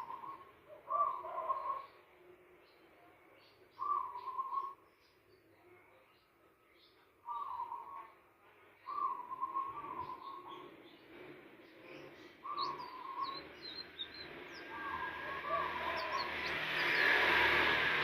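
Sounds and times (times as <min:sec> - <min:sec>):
noisy hiss: 0:11.1 - 0:18.0.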